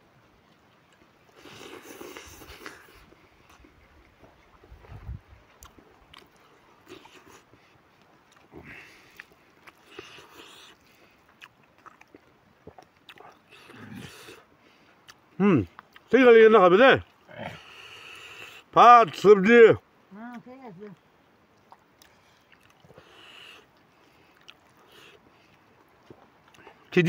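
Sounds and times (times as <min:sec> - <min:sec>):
person chewing food: 0:00.8 - 0:16.1, 0:21.6 - 0:26.9.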